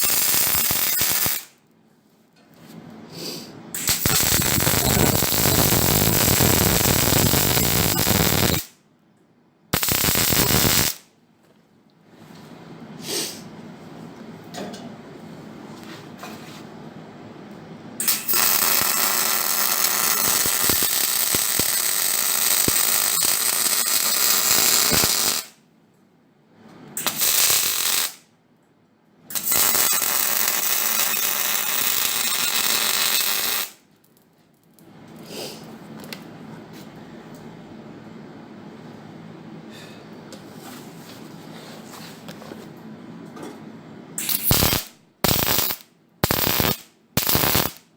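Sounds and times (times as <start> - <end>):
arc welding crackling: 0.0 - 1.6, 3.8 - 8.8, 9.7 - 11.1, 18.0 - 25.6, 27.0 - 28.2, 29.3 - 33.8, 44.2 - 47.9.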